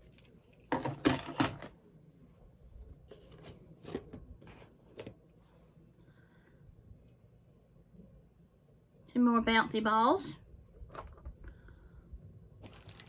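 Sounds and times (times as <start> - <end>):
packaging rustling: 12.6 - 13.0.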